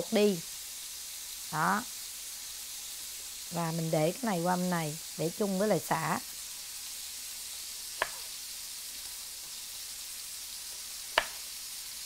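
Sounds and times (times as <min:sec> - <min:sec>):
pork sizzling in a pan: 0:00.0 - 0:12.0
knife striking cutting board: 0:08.0 - 0:08.3, 0:11.1 - 0:11.5.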